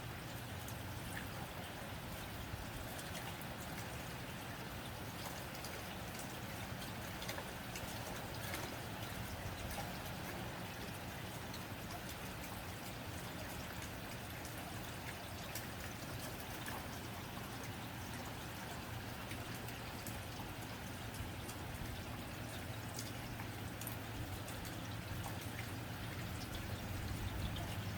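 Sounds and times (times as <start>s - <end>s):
rain on a tin roof: 0.0s - 27.9s.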